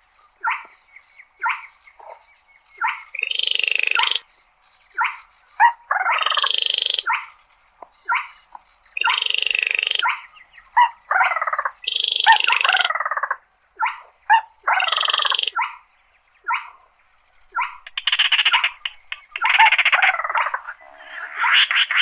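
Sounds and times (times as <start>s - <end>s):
bird giving rattling trills: 3.2s - 4.2s, 9.0s - 10.2s, 11.6s - 13.2s, 14.7s - 15.8s, 17.5s - 22.0s.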